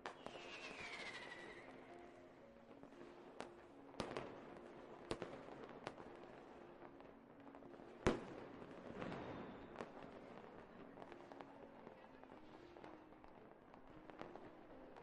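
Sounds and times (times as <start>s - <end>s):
fireworks bangs: 0.0s - 1.9s, 8.0s - 11.4s
fireworks crackling: 0.0s - 15.0s.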